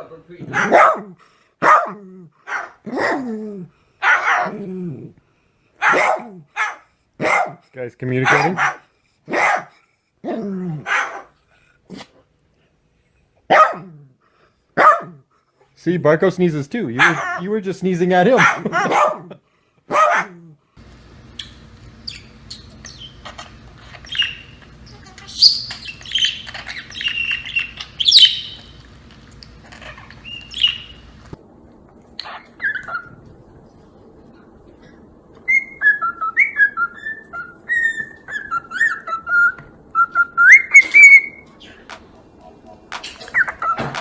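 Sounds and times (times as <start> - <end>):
parrot chirping and squawking: 0.4 - 3.2, 4.0 - 4.7, 8.2 - 9.7, 17.0 - 17.5, 21.4 - 28.8, 29.6 - 31.3, 32.2 - 33.2, 35.5 - 39.6, 40.4 - 42.0, 42.9 - 44.0.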